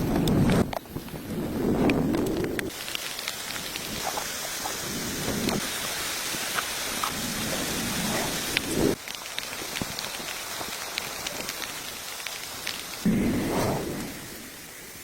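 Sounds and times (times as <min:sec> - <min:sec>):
steady rain falling: 0:00.0 - 0:15.0
low rumble: 0:13.0 - 0:14.8.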